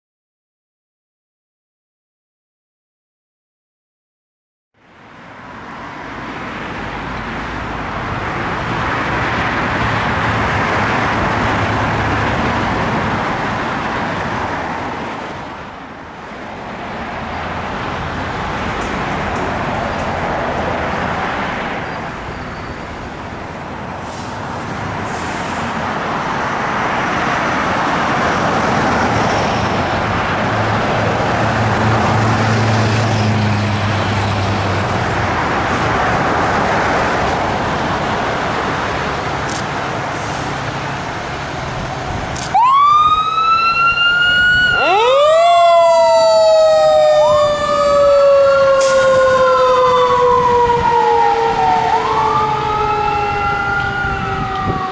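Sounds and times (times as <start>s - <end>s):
traffic on wet roads: 4.8s - 54.9s
fire engine sirens wailing: 16.8s - 54.9s.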